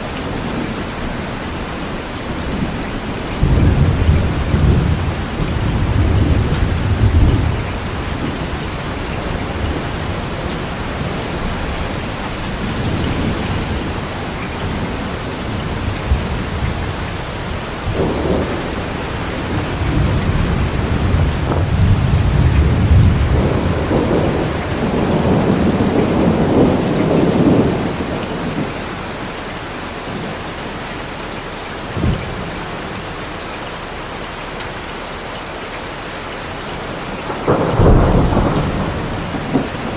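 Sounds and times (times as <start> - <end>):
steady rain falling: 0.0 - 39.9
distant thunder rumbling: 2.1 - 29.4, 31.9 - 33.1, 36.8 - 39.9
sharp thunder clap: 17.8 - 28.7, 37.3 - 39.9.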